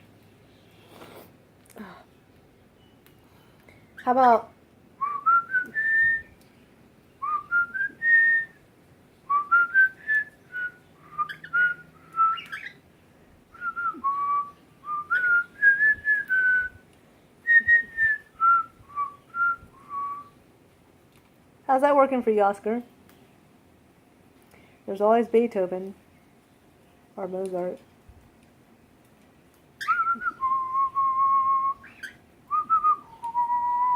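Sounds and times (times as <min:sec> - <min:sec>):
person whistling a melody: 0:05.0 - 0:06.3, 0:13.6 - 0:16.8, 0:17.5 - 0:20.3, 0:29.9 - 0:31.9, 0:32.5 - 0:33.9.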